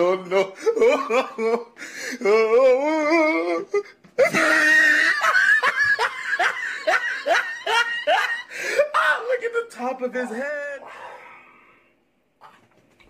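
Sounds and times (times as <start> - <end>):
person laughing hard: 0.2 - 1.8, 3.1 - 8.9.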